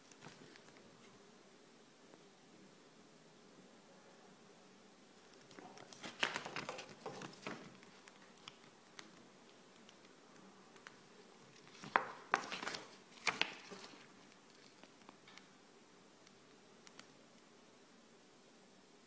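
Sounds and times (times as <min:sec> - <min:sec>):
packaging crinkling and rustling: 0:05.8 - 0:08.7, 0:11.5 - 0:14.9.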